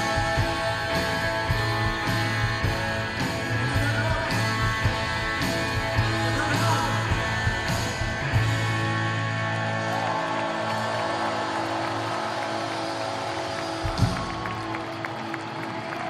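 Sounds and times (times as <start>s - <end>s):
drums steady beat: 0.0s - 9.1s, 13.6s - 15.1s
bass guitar: 0.0s - 15.9s
electric guitar chords: 0.0s - 16.0s.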